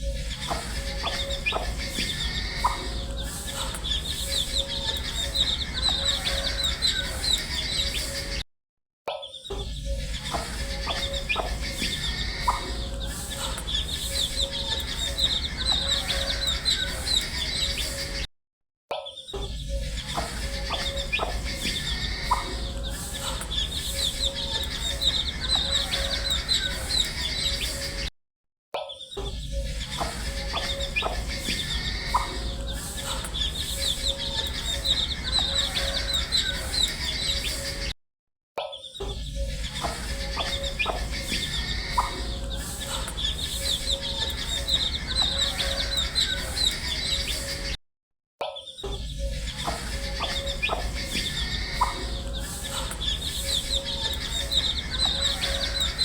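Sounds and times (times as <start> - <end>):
baby chicks peeping: 0.0 - 8.4, 9.5 - 18.2, 19.7 - 28.1, 29.5 - 37.9, 39.4 - 47.8, 49.2 - 56.0.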